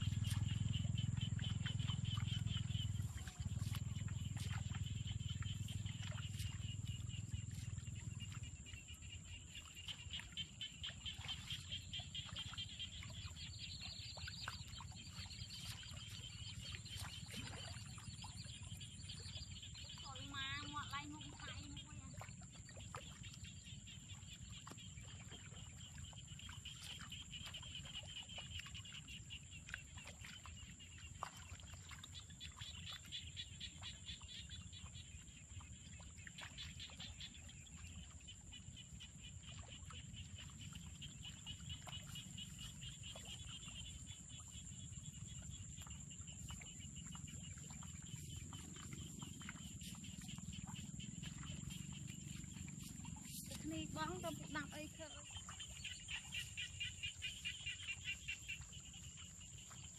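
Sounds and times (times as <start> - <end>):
rapid pulsing animal trill: 48.2 - 56.5.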